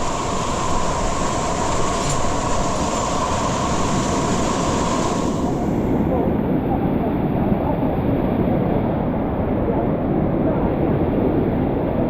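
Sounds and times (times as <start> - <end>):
waterfall rushing: 0.0 - 5.7.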